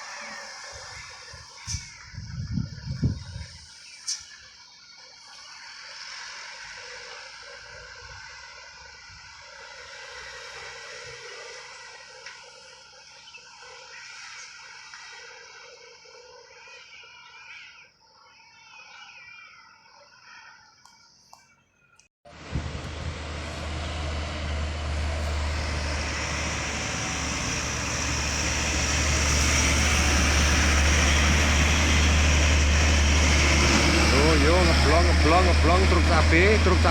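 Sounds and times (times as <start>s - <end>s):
vehicle engine rumbling: 0.0s - 3.7s, 22.3s - 36.9s
outdoor noise: 0.0s - 36.9s
broad rush of noise: 22.3s - 36.9s.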